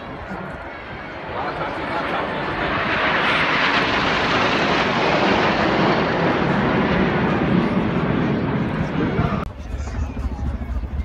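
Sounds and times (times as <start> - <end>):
aircraft engine roar: 0.0 - 11.0.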